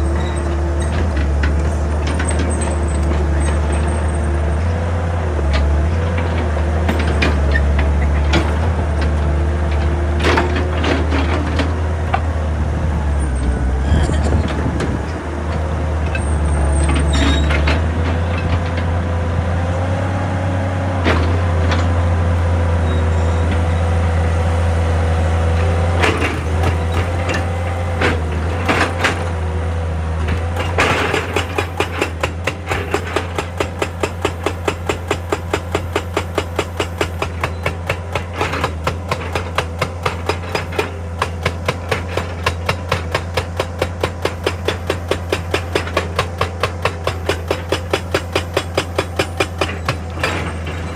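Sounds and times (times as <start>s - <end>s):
clanks of rock and steel: 0.0s - 19.2s, 22.9s - 50.9s
hydraulic rock breaker hammering: 0.0s - 20.1s, 20.8s - 50.9s
diesel engine running: 0.0s - 50.9s.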